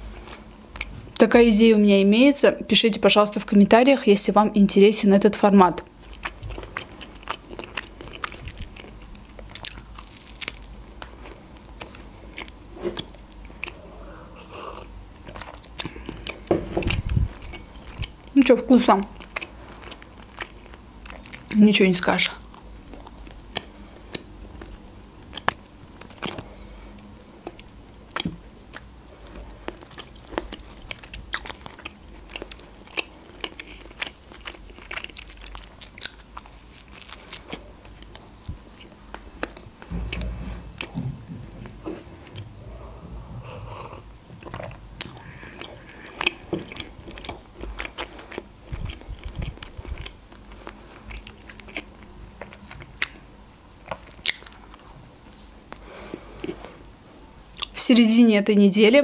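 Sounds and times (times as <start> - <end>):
person biting and chewing: 6.0 - 13.8, 27.4 - 41.0, 43.6 - 54.9.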